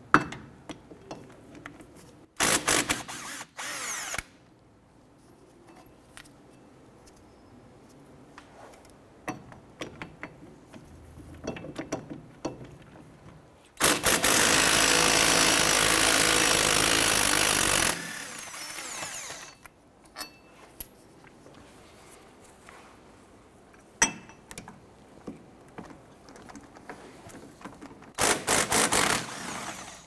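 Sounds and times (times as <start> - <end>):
power ratchet running: 2.4 - 4.3, 13.8 - 19.6, 28.2 - 30.0.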